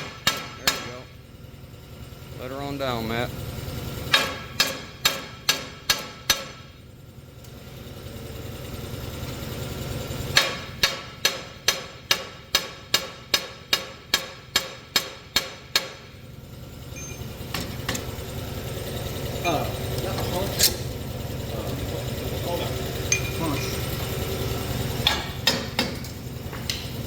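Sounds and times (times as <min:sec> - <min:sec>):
hammer striking steel: 0:00.0 - 0:01.0, 0:04.1 - 0:06.7, 0:10.3 - 0:16.1, 0:23.0 - 0:24.1, 0:25.0 - 0:27.0.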